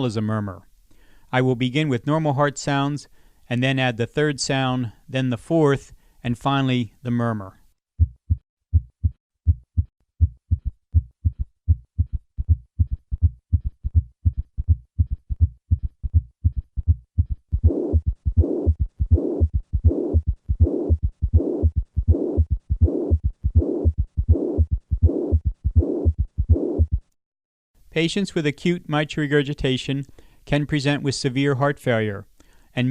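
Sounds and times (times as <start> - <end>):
heartbeat thuds: 8.0 - 27.2
rushing heart murmur: 8.0 - 27.2.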